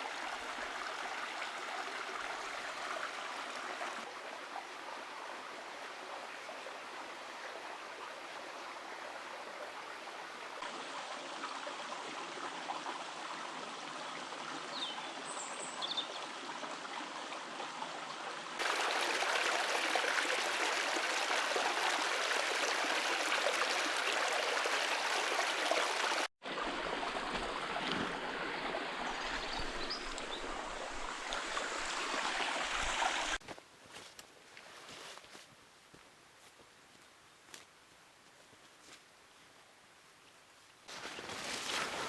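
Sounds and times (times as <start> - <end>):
river water rushing: 18.6 - 26.8.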